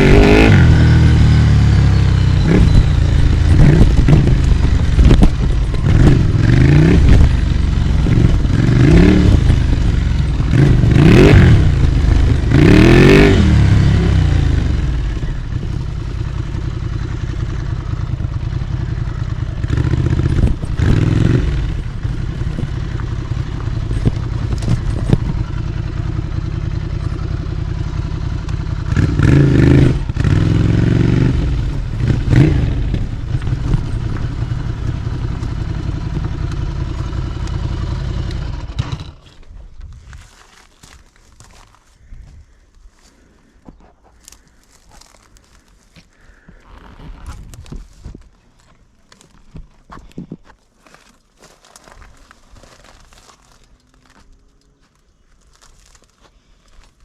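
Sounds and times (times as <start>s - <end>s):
motorcycle engine revving: 0.0s - 41.8s
engine clicks and knocks: 2.2s - 13.3s, 14.8s - 30.8s, 31.4s - 39.9s.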